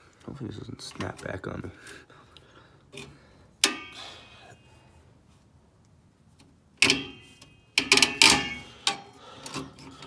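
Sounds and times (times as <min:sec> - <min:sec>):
metal spring and tool clinking: 0:03.0 - 0:04.6, 0:06.8 - 0:10.0.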